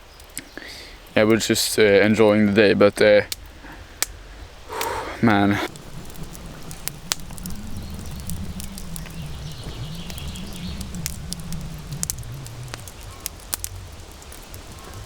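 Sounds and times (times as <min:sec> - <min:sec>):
campfire crackling and popping: 0:00.0 - 0:15.0
low steady rumble: 0:03.3 - 0:15.0.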